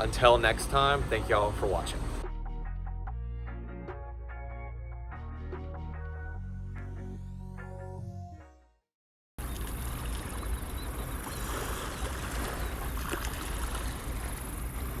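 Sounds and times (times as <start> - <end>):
river water: 0.0 - 2.2, 9.4 - 15.0
wind noise: 9.4 - 15.0.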